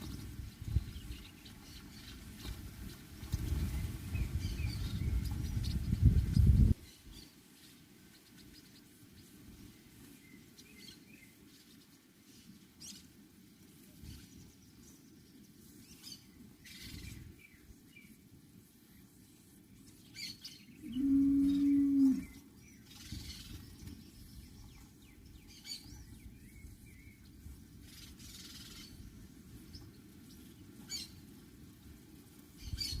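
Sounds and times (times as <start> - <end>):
faint bird chirps: 18.9 - 31.2
cow mooing: 20.9 - 22.4.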